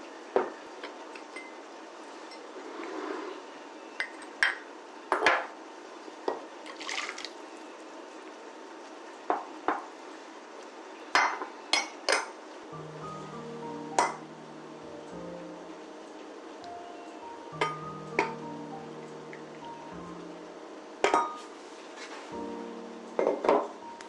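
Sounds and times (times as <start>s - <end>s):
soft background music: 10.8s - 24.0s
dishes clinking: 11.2s - 12.3s, 17.6s - 18.4s, 21.0s - 21.5s, 23.2s - 23.7s.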